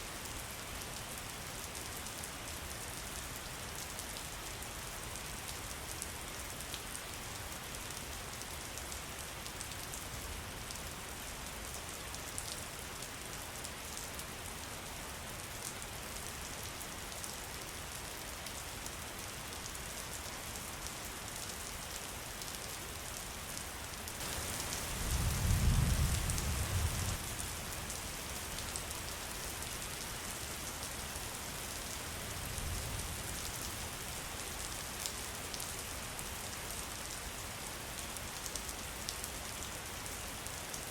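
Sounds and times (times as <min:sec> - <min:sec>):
steady rain falling: 0:00.0 - 0:40.9
thunder rumbling: 0:24.9 - 0:27.2.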